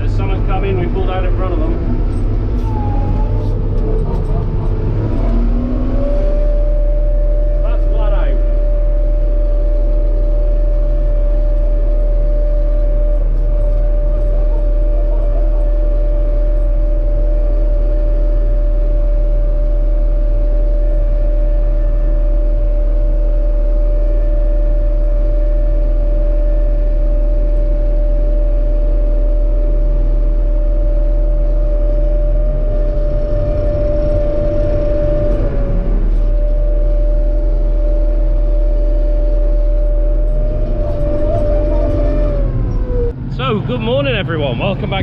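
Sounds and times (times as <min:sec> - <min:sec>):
combine harvester engine rumble: 0:00.0 - 0:45.0
constant high whine: 0:00.0 - 0:45.0.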